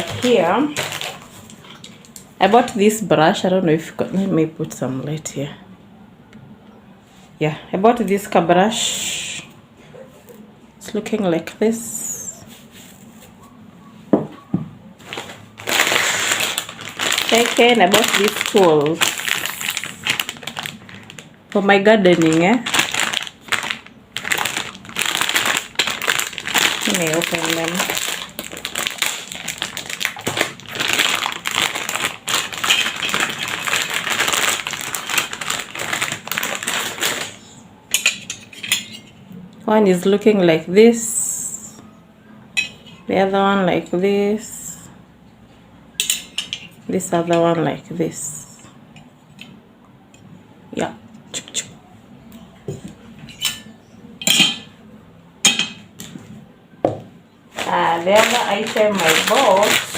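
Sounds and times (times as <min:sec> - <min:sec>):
packaging crinkling: 0:00.0 - 0:02.1, 0:15.0 - 0:37.6, 0:57.5 - 0:59.9.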